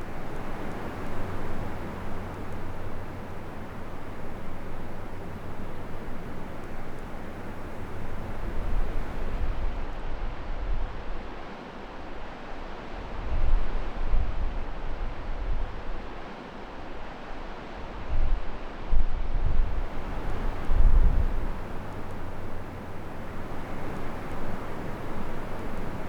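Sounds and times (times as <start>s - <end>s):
wind buffeting microphone: 0.0s - 9.8s, 19.5s - 26.0s.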